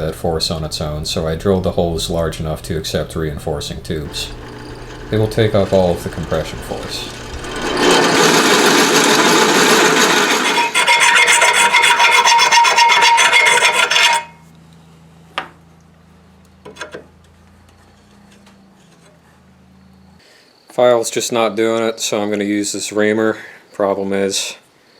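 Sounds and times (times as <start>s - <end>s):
hand tool scraping steel: 2.0s - 14.4s.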